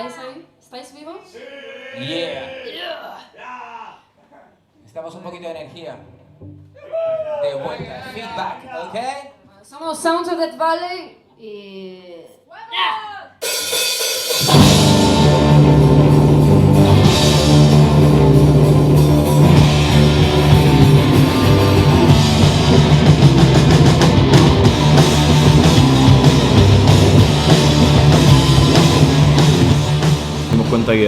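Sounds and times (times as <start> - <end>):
rock band playing heavy rock: 13.5 - 31.0.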